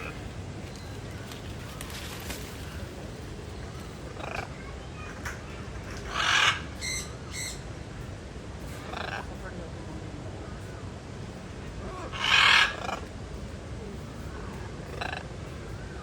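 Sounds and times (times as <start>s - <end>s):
birds calling: 0.0s - 9.5s, 10.4s - 13.2s, 14.2s - 16.0s.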